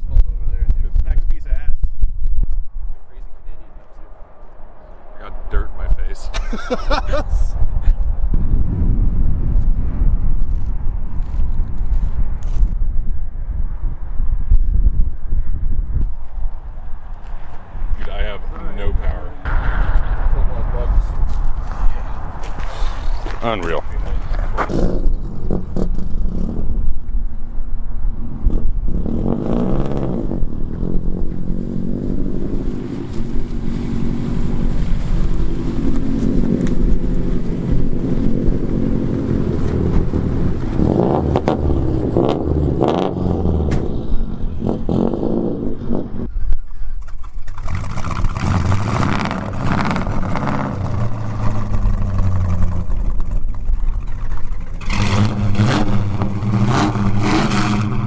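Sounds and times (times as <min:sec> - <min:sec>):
road noise: 0:00.0 - 0:58.0
car engine revving: 0:17.7 - 0:26.8, 0:28.1 - 0:46.3, 0:47.5 - 0:58.0.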